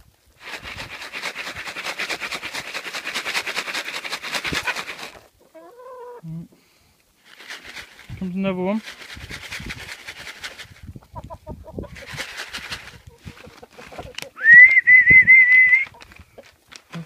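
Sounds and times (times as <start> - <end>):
rustling: 0.4 - 5.4, 7.2 - 10.9, 11.9 - 14.8
hens clucking: 1.8 - 6.6, 9.7 - 14.4
person whistling long note: 14.4 - 15.9.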